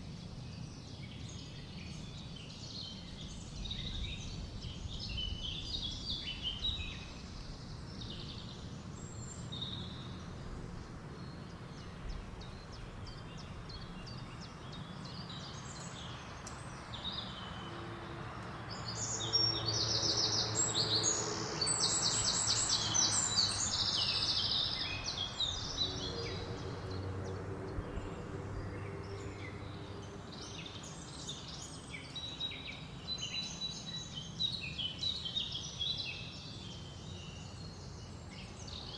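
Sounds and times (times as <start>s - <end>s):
songbirds chirping and singing: 0.6s - 38.9s
rapid trilled birdsong: 0.7s - 38.9s
low wind rumble: 2.9s - 16.1s, 22.0s - 31.6s.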